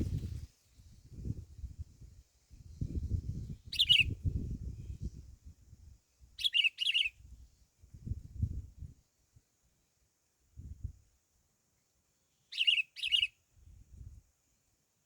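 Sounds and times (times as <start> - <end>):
songbird chirping: 3.6 - 5.2, 6.4 - 7.2, 11.7 - 13.5.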